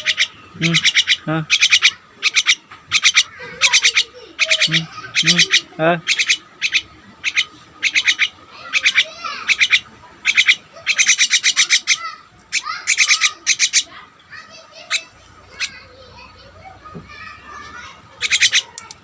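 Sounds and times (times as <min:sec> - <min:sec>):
bird sweeping calls: 0:00.0 - 0:14.0, 0:18.1 - 0:18.8
birds chirping and trilling: 0:00.0 - 0:19.0.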